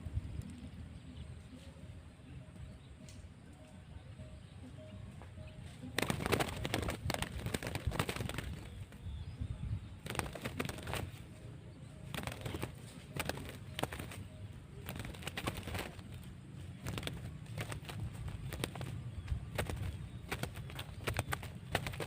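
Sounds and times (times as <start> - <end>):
dove cooing: 10.0 - 22.0
rustling noise: 12.1 - 22.0.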